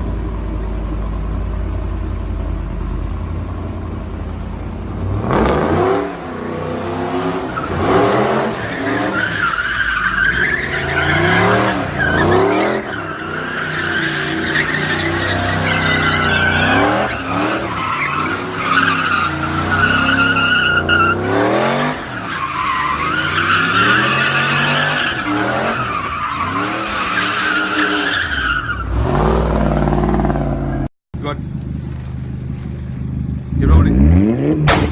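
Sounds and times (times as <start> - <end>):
car engine revving: 4.8 - 30.9, 31.8 - 34.9
tyres squealing: 8.5 - 29.2.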